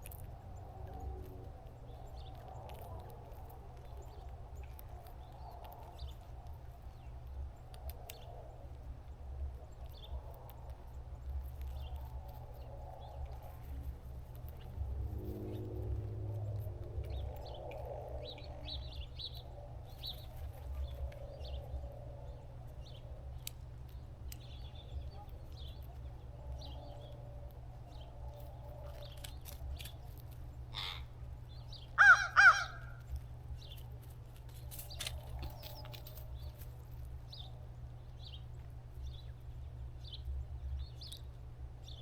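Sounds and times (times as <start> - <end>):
crow cawing: 30.7 - 31.1, 32.0 - 33.0.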